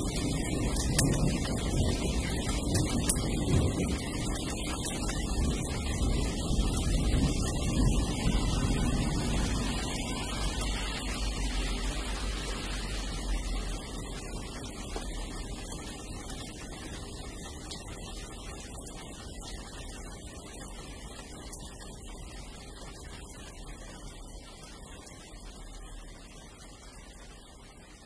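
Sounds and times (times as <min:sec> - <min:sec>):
low thunder rumble: 0:00.0 - 0:11.6
steady rain: 0:00.0 - 0:28.0.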